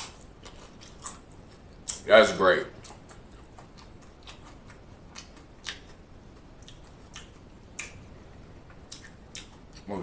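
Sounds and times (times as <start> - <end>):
chewing crunchy chips: 0.0 - 2.0, 2.8 - 8.0
wet mouth clicks: 2.8 - 6.0, 6.6 - 8.0, 8.9 - 9.9.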